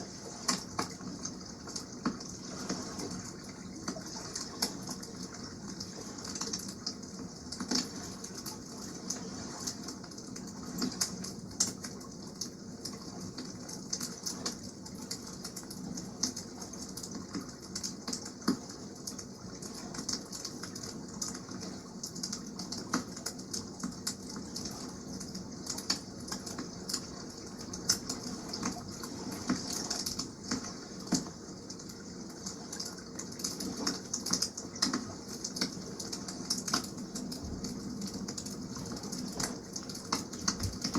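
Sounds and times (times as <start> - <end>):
water washing: 26.2 - 40.9.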